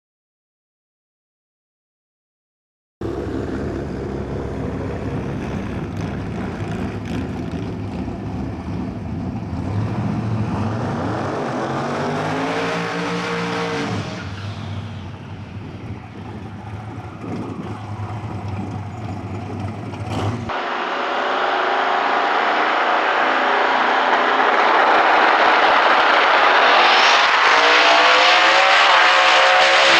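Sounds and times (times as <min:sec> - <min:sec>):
car engine idling: 0:03.0 - 0:09.6, 0:15.2 - 0:26.8
loud hissy engine noise: 0:03.0 - 0:17.0, 0:17.6 - 0:29.9.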